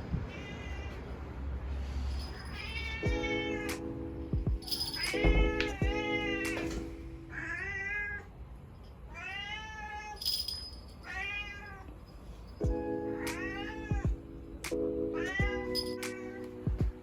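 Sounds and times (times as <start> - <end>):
cat meowing: 0.3 - 1.2, 2.4 - 3.9, 5.0 - 8.3, 9.1 - 10.2, 11.0 - 12.0, 12.8 - 14.2, 15.2 - 16.6
background music: 3.0 - 7.4, 12.6 - 17.0.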